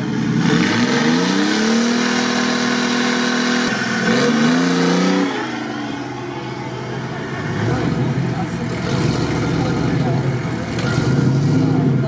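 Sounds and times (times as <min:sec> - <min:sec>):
engine revving: 0:00.0 - 0:12.0.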